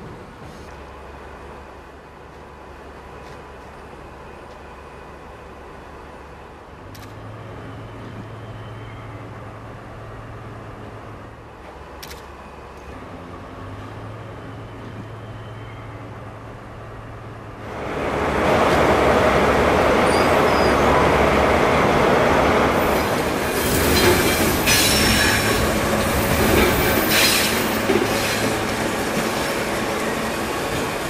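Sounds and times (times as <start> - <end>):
passenger train passing: 0.0 - 31.0
train wheels screeching: 19.9 - 21.1, 22.8 - 31.0.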